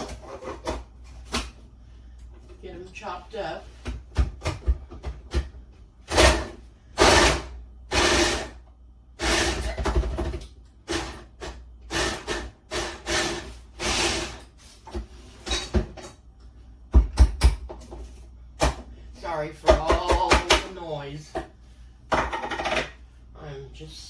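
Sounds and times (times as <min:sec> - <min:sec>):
food processor chopping carrots: 0:06.1 - 0:08.6, 0:09.2 - 0:14.4.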